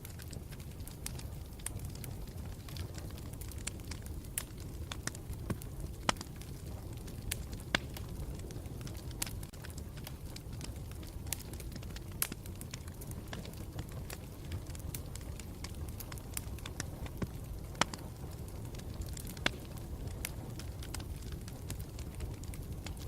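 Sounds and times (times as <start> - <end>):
campfire rumble: 0.0 - 23.0
fire crackling: 0.0 - 23.0
fire popping: 0.0 - 23.0.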